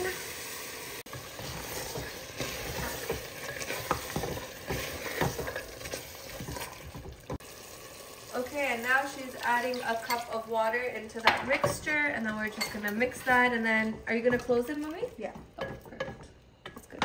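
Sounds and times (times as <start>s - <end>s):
meat sizzling in a pot: 0.0s - 15.1s
wooden spoon scraping a pot: 1.1s - 7.4s, 11.3s - 17.0s.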